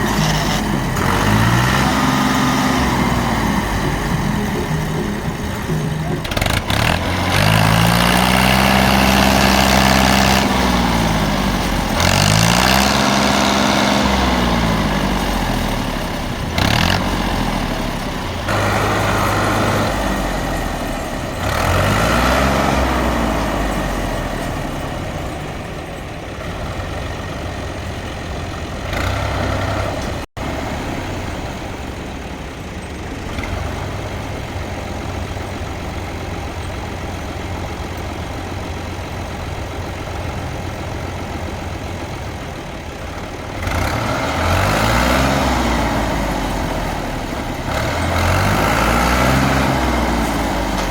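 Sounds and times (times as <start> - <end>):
tractor engine revving: 0.0 - 50.9.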